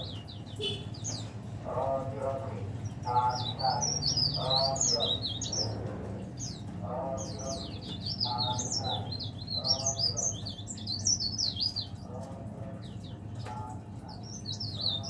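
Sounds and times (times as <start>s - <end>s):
warbler singing: 0.0s - 15.0s.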